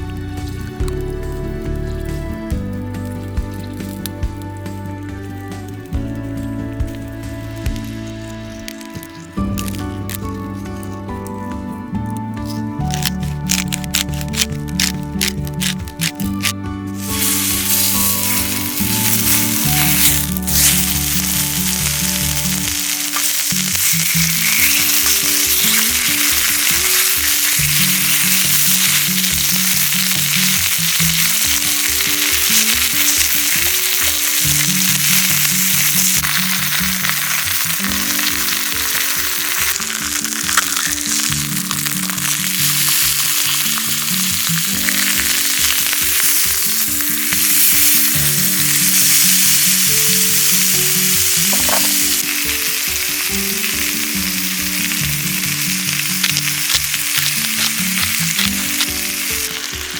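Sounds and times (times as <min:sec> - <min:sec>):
background music with pulsing bass: 0:00.0 - 0:25.0
wood stove crackling and sizzling: 0:00.0 - 0:59.9.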